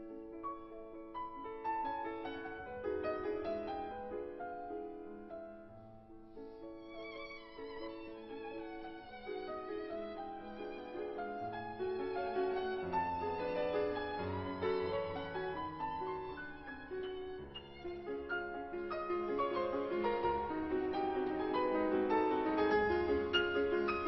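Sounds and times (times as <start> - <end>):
piano: 0.0 - 24.0
slow violin melody: 6.3 - 24.0.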